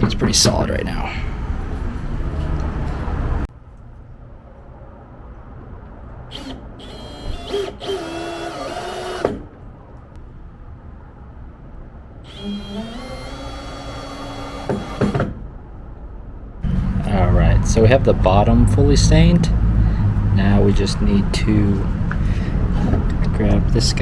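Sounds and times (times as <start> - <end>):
cordless drill driving screws: 6.3 - 9.4, 12.3 - 15.2.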